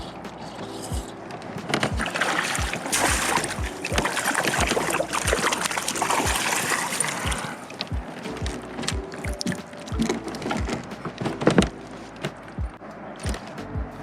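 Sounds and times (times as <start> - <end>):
water splashing around kayak: 0.0 - 13.6.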